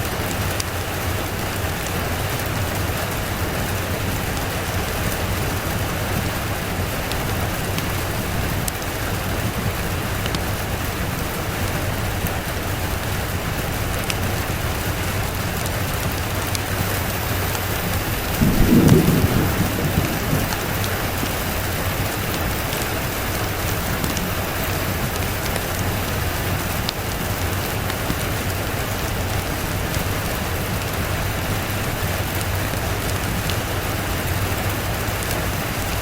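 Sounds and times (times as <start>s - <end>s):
steady rain falling: 0.0s - 36.0s
low rumble of thunder: 16.0s - 26.9s.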